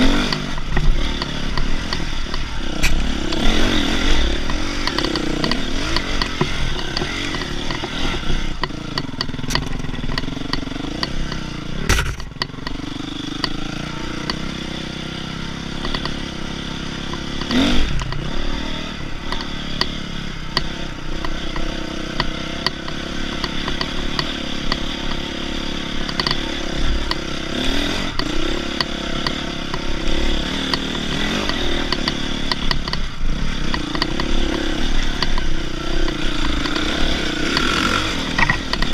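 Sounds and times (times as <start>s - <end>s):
dirt bike engine revving: 0.0s - 38.9s
bike clattering and knocking: 4.5s - 12.8s, 38.3s - 38.9s.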